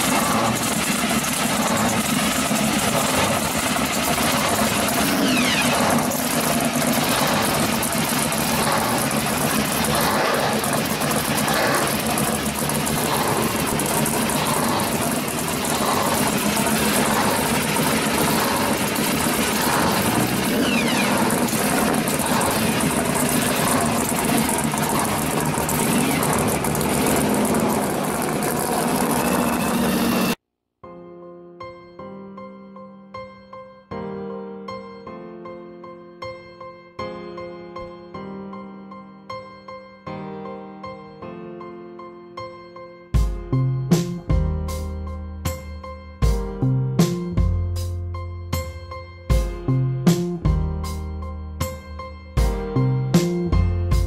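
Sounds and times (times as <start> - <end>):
car engine idling: 0.0 - 30.4.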